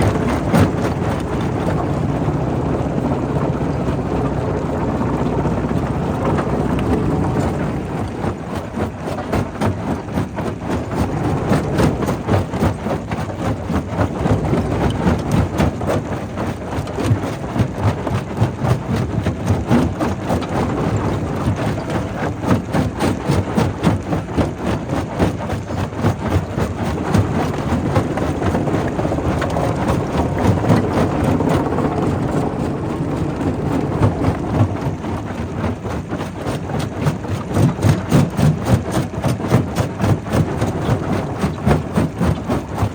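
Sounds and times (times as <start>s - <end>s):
steady mechanical drone: 0.0s - 15.9s, 25.9s - 42.9s.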